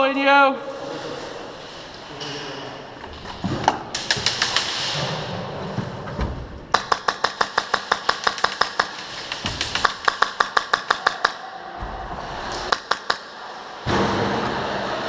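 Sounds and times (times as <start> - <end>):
airsoft gunfire: 4.0 - 5.1, 6.7 - 11.4, 12.6 - 13.4.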